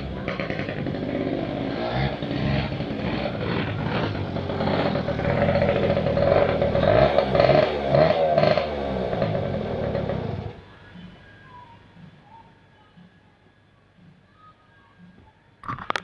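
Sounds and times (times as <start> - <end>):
dirt bike engine revving: 0.0 - 10.6.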